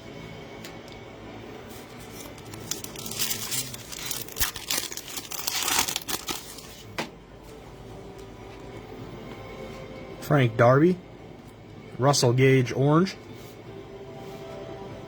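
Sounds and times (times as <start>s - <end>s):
foil wrapper crinkling and tearing: 2.0s - 6.9s.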